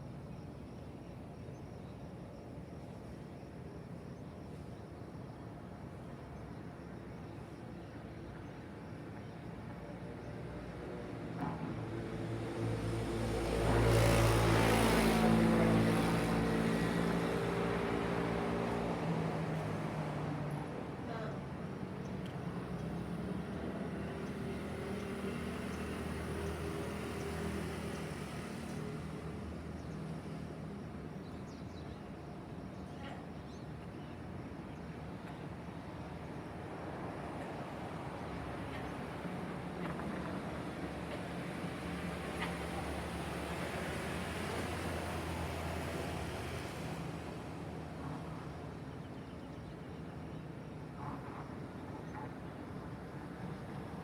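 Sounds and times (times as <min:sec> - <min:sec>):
distant traffic hum: 0:08.0 - 0:54.0
vehicle passing by: 0:12.3 - 0:20.0, 0:41.0 - 0:48.3.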